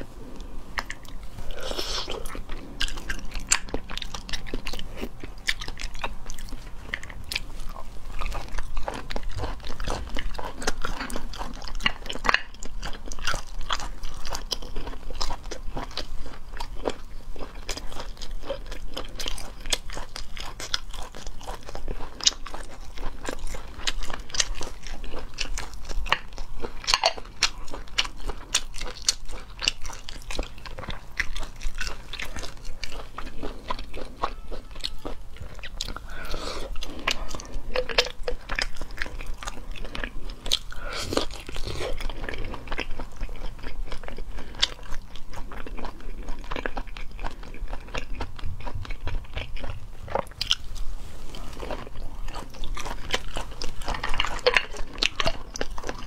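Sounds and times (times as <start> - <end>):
wet crunchy mouth clicks: 0.0 - 17.0, 34.9 - 50.6
chewing and biting: 0.0 - 56.0.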